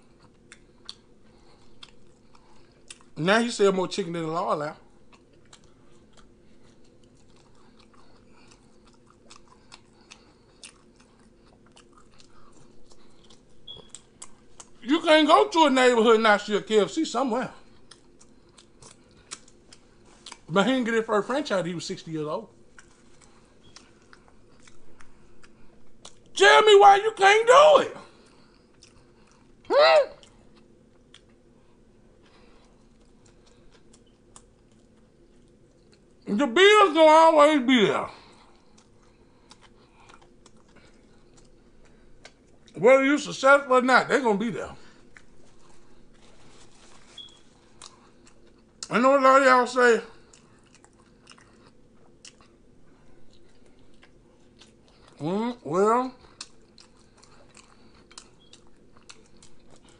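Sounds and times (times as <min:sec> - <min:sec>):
person chewing fries: 0:00.0 - 0:03.2, 0:04.8 - 0:16.1, 0:17.2 - 0:26.4, 0:27.0 - 0:36.6, 0:37.9 - 0:42.8, 0:44.6 - 0:49.0, 0:50.1 - 0:59.9
mouth clicks of chewing: 0:00.2 - 0:03.2, 0:05.1 - 0:14.8, 0:56.3 - 0:59.9
wet mouth clicks and smacks: 0:17.8 - 0:20.5.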